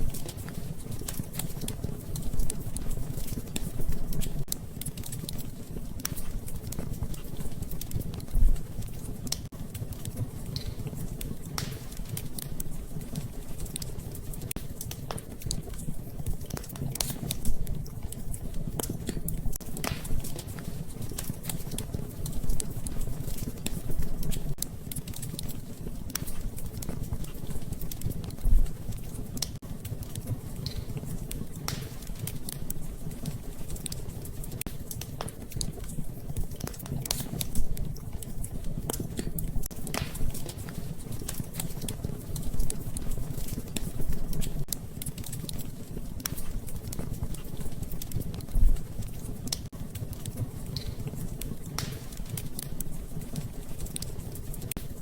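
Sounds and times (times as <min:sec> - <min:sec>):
fire pops and snaps: 0:00.0 - 0:55.0
wood fire crackling: 0:00.0 - 0:55.0.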